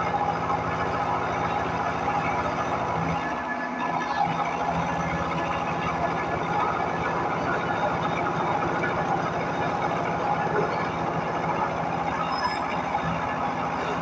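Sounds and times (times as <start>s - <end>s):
milling machine cutting metal: 4.9s - 14.0s.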